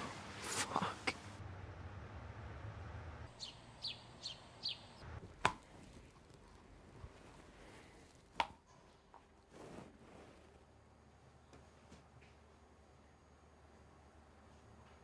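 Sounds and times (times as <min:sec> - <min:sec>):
faint background hum: 0:00.0 - 0:15.0
bird chirping: 0:03.3 - 0:05.1.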